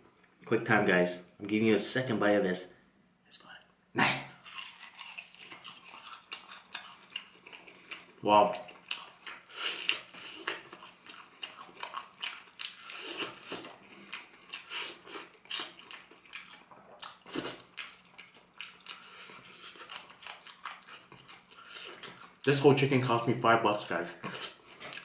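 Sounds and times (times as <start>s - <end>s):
chewing crunches: 4.4s - 22.5s.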